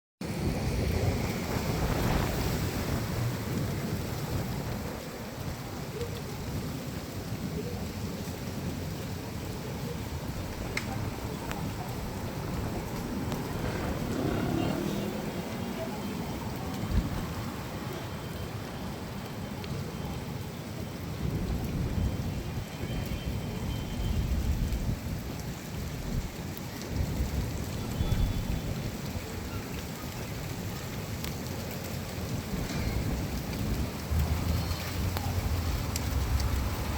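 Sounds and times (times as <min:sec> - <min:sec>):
low rolling thunder: 0:00.2 - 0:18.0, 0:20.8 - 0:29.6, 0:31.9 - 0:36.9
heavy rain falling: 0:00.2 - 0:36.9.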